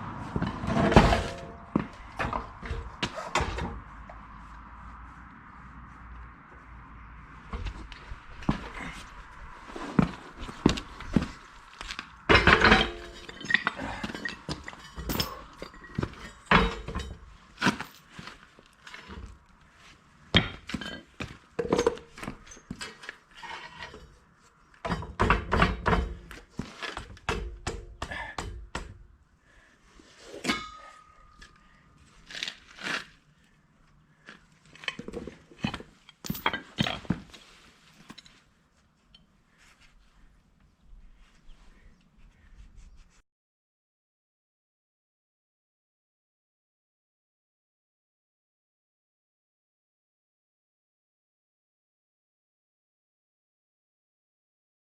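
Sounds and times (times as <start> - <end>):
metal thunks and clinks: 0.4 - 3.9, 12.2 - 19.4, 20.4 - 24.1, 24.8 - 29.0, 34.8 - 37.4.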